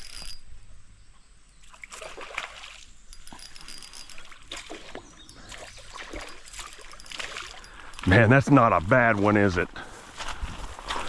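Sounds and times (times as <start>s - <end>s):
water splashing and dribbling: 1.6s - 8.2s, 10.2s - 11.0s.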